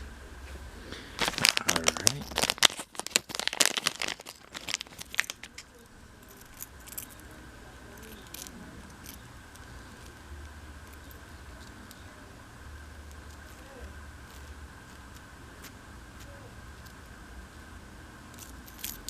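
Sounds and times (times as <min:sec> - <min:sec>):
faint steady hum: 0:00.0 - 0:19.0
packaging crinkling: 0:01.2 - 0:07.1.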